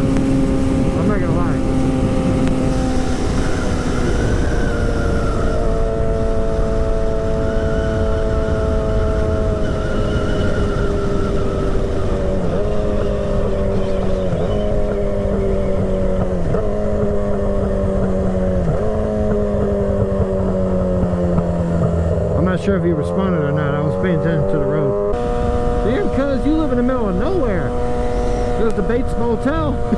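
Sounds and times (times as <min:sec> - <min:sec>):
heavy wind rush: 0:00.0 - 0:29.9
motorcycle engine cruising: 0:00.0 - 0:29.9.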